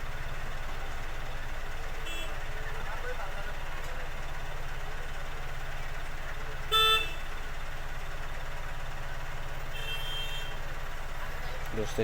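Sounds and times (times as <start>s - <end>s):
vehicle horn toot: 2.0s - 2.4s, 6.6s - 7.4s, 9.7s - 10.6s.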